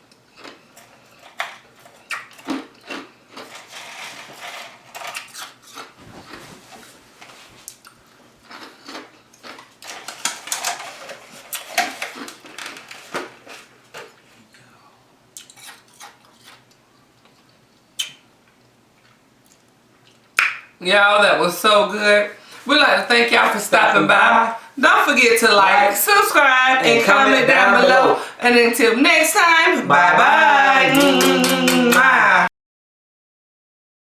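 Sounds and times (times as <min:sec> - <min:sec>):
person chewing and smacking: 0:00.1 - 0:03.6, 0:07.7 - 0:10.4, 0:15.3 - 0:18.2.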